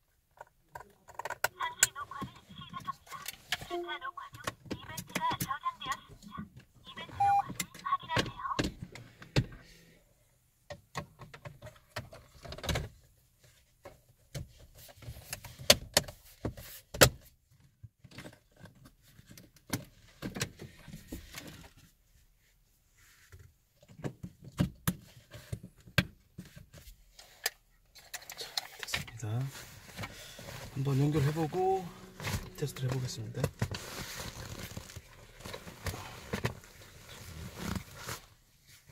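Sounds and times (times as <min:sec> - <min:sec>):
clicks and rattles of car parts: 0:00.3 - 0:01.9, 0:10.7 - 0:13.1.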